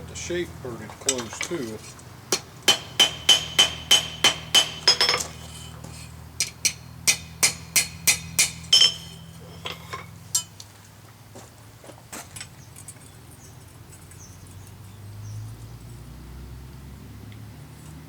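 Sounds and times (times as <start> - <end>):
hammer ringing on steel bowl: 2.7 - 5.2, 6.7 - 9.3.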